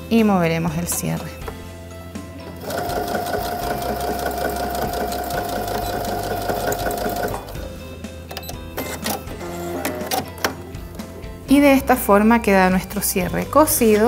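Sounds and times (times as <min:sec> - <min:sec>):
sewing machine motor whining: 0:02.6 - 0:07.5.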